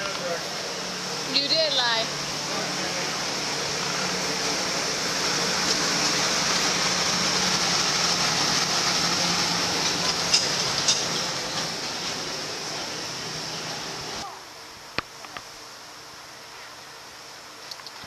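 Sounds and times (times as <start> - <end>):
train rolling past: 0.0 - 14.2.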